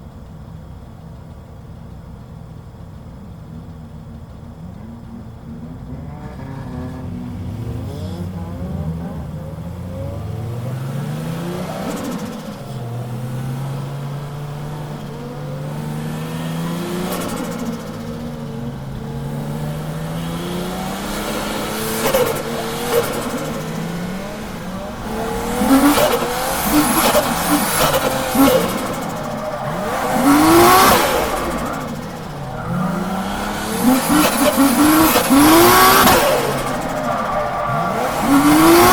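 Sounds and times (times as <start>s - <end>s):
car engine revving: 2.9s - 38.9s
tyre squeal: 22.0s - 38.9s.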